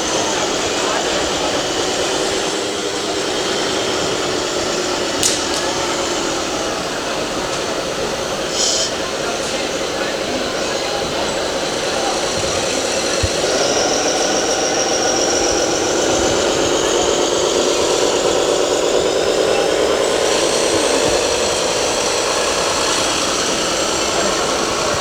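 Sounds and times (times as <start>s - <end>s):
engine-like hum: 0.0s - 25.0s
whine of small motors: 0.0s - 25.0s.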